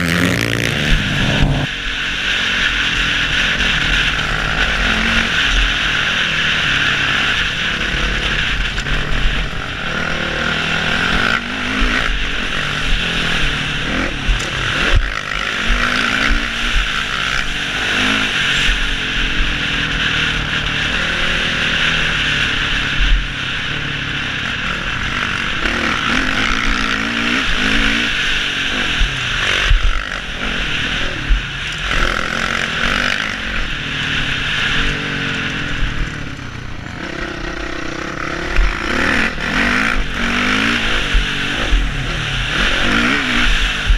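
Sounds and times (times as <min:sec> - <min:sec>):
wind noise rushing: 0:00.0 - 0:01.9
motocross bike engine revving: 0:00.0 - 0:43.9.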